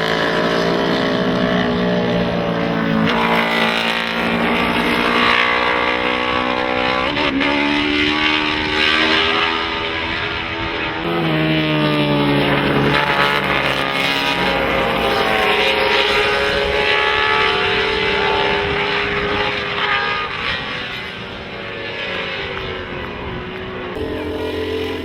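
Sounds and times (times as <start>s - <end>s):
racing motorcycles passing: 0.0s - 25.0s.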